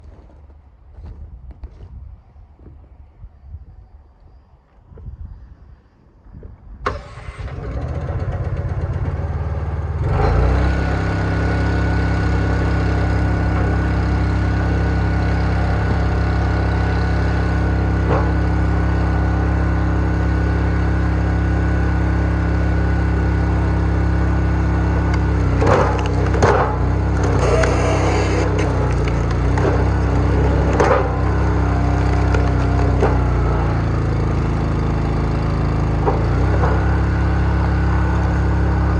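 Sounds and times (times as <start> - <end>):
log splitter engine running: 6.8 - 38.9
wood cracking: 25.1 - 33.4.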